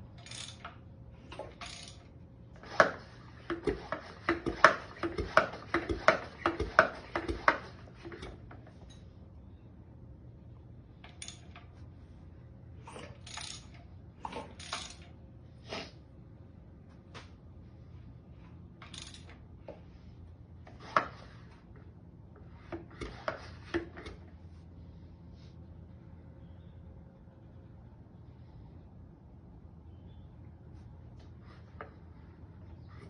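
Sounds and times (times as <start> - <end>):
metal tools clinking: 0.0 - 2.1, 11.1 - 11.7, 13.1 - 15.2, 18.8 - 19.4
low steady hum: 0.0 - 33.0.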